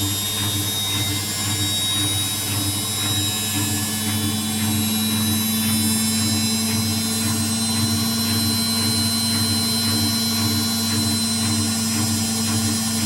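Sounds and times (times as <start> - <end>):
washing machine running: 0.0 - 13.0.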